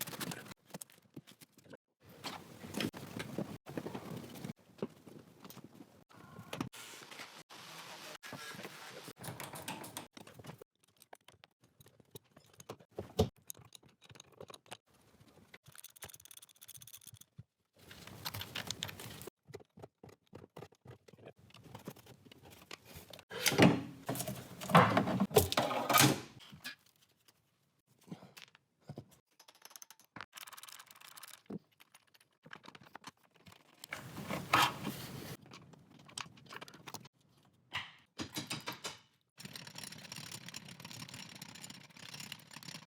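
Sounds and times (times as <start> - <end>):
tools and metal parts clattering: 9.2 - 14.8, 17.8 - 19.3, 21.7 - 26.8, 29.3 - 37.1, 38.2 - 42.9.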